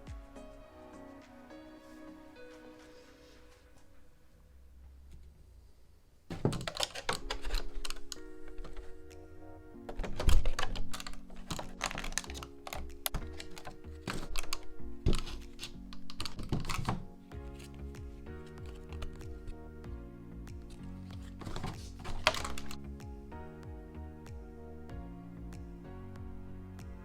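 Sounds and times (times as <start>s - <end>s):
background music with held chords: 0.0s - 4.2s, 6.6s - 27.0s
packaging crinkling: 6.3s - 9.0s, 9.9s - 19.6s, 20.7s - 22.8s
card box clicks and taps: 20.6s - 22.8s.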